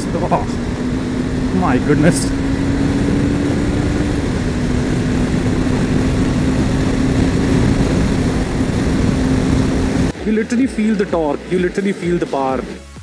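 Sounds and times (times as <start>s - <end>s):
wind rush on microphone: 0.0s - 10.2s
motorcycle engine running: 0.0s - 13.0s.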